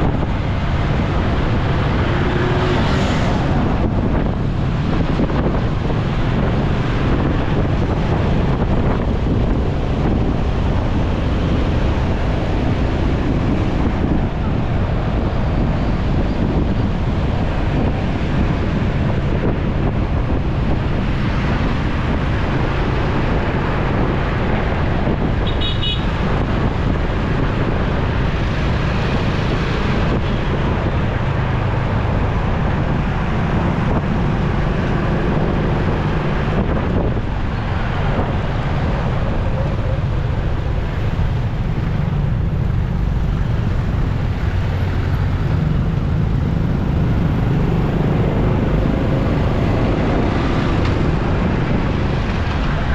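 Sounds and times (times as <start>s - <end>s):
traffic noise: 0.0s - 52.9s
wind noise on microphone: 0.0s - 52.9s
vehicle horn beep: 25.4s - 26.2s.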